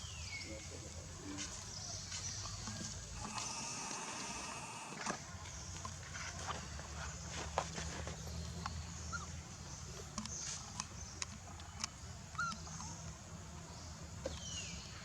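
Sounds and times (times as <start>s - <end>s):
scattered clicks: 3.2s - 5.0s
monkey squeaking calls: 12.4s - 12.7s.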